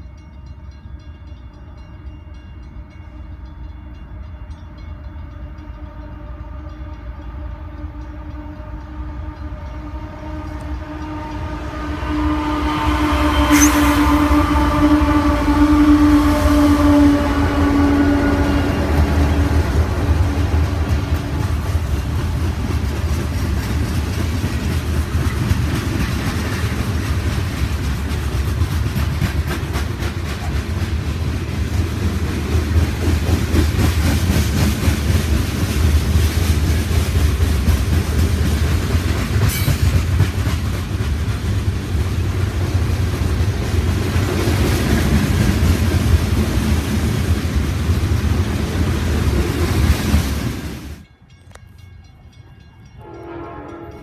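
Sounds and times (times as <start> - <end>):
freight train rolling past: 0.0 - 54.0
sharp high-pitched sound: 13.3 - 14.3
wheels clicking over rail joints: 18.9 - 50.3.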